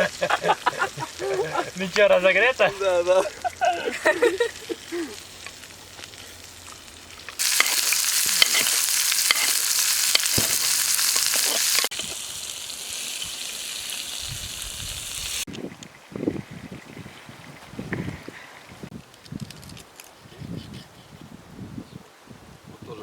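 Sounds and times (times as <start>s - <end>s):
steak sizzling on hot stone: 0.0s - 15.5s.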